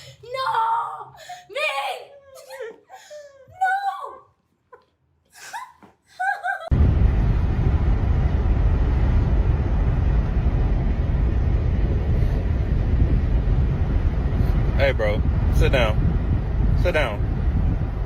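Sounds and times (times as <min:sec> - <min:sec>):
person laughing: 0:04.7 - 0:06.7
loud steady low rumbling: 0:06.7 - 0:18.0.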